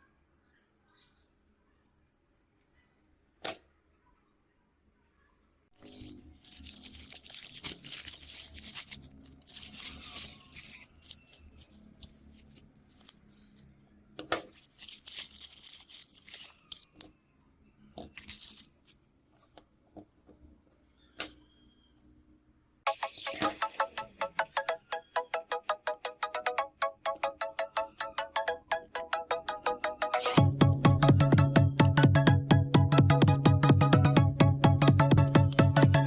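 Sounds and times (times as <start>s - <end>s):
crackling tearing and peeling: 5.8s - 13.3s.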